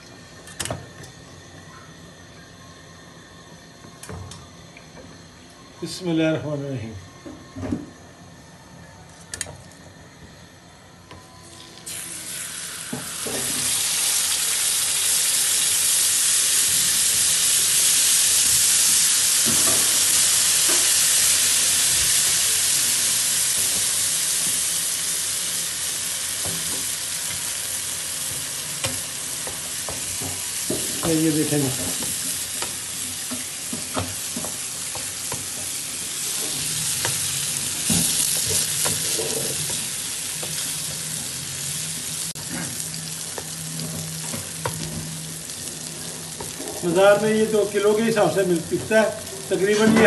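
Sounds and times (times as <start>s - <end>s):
loud sizzle in hot ghee: 11.5s - 50.0s.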